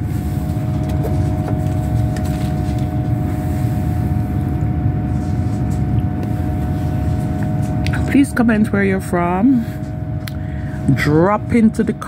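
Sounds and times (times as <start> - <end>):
constant hum: 0.0 - 12.0
train engine rumble: 0.0 - 12.0.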